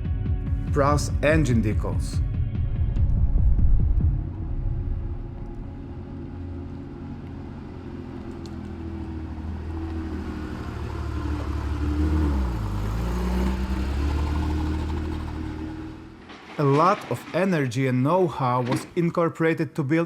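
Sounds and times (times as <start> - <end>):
car engine running: 1.8 - 16.5.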